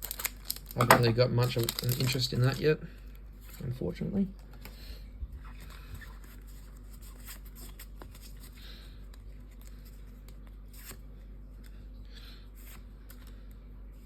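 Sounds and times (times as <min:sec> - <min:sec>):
card pack rustling and clicks: 0:00.0 - 0:02.7, 0:05.4 - 0:11.0
low steady hum: 0:00.0 - 0:14.0.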